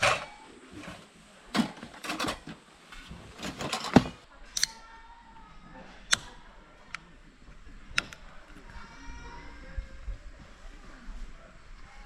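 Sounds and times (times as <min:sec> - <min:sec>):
utensils and dishes clinking: 0:00.0 - 0:00.4, 0:01.6 - 0:02.6, 0:03.4 - 0:04.2.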